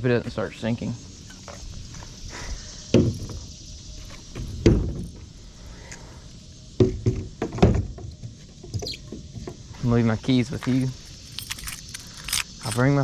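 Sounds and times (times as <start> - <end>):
hollow knocks on a kayak: 2.9 - 3.4, 4.4 - 5.1, 6.8 - 8.8.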